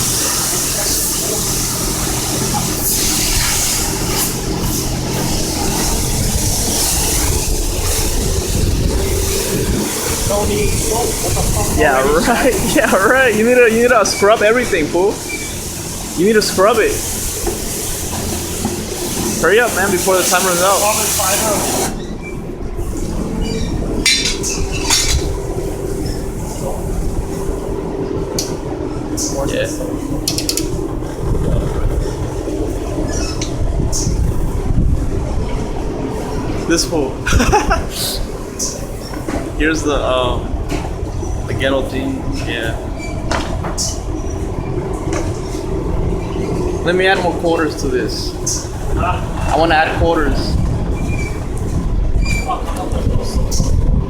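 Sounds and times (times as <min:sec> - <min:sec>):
pressure wand spraying water: 0:00.0 - 0:22.1
high-pressure pump humming: 0:00.0 - 0:54.0.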